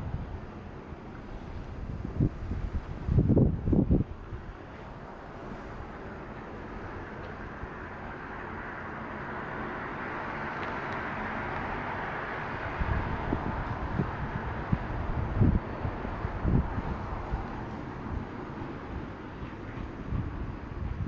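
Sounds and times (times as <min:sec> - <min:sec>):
wind buffeting microphone: 0:00.0 - 0:08.2, 0:10.4 - 0:21.0
passing car tyres and engines: 0:00.0 - 0:21.0.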